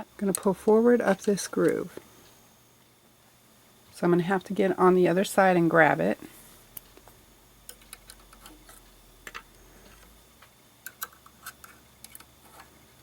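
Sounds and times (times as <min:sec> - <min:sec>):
small clicks of plastic parts: 0:07.7 - 0:12.7.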